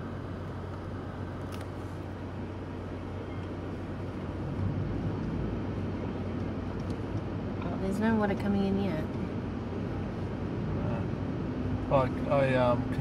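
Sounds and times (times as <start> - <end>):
vehicle engine running low: 0.0 - 13.0.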